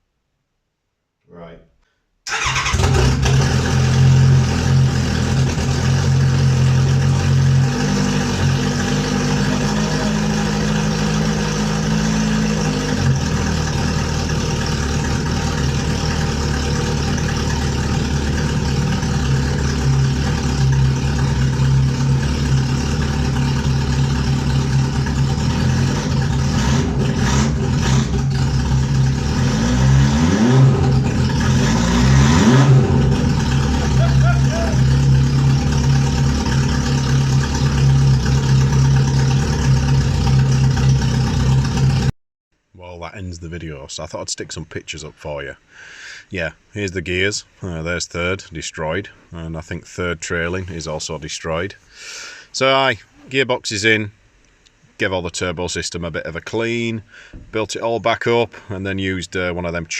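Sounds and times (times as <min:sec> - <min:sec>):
motorcycle engine running: 0:02.4 - 0:42.1.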